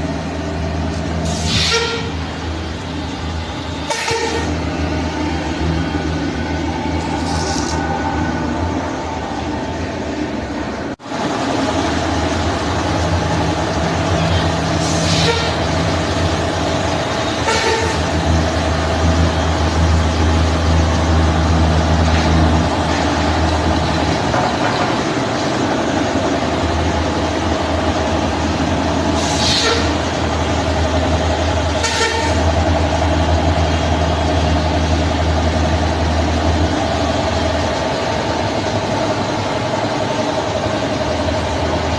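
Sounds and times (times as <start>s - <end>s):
short air hisses: 1.2s - 2.0s, 14.8s - 15.5s, 29.2s - 29.9s.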